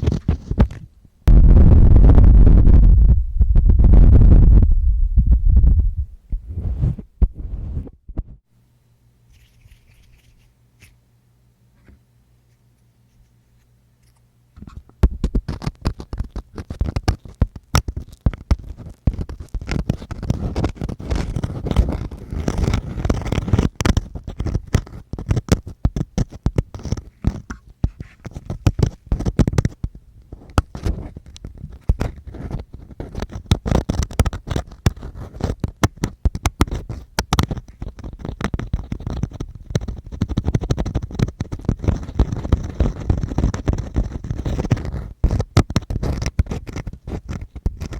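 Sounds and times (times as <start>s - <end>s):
ear-cleaning tool scraping microphone: 5.5s - 8.0s, 15.5s - 47.9s.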